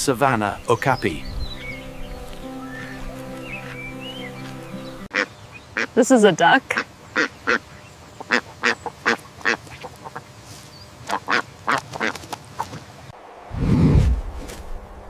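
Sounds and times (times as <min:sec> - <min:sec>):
duck quacking: 0:05.1 - 0:05.9, 0:06.7 - 0:10.2, 0:11.1 - 0:12.2.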